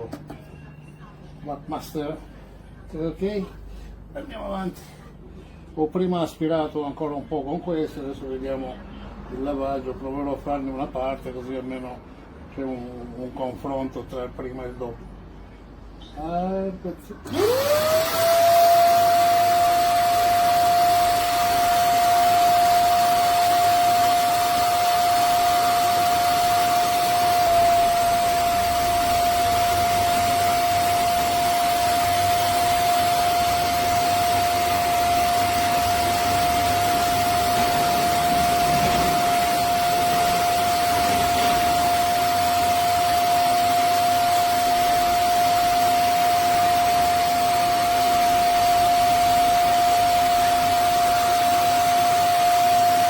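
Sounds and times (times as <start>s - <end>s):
carpet cleaner suction motor whine: 17.2s - 53.0s
rush of air: 36.7s - 42.6s.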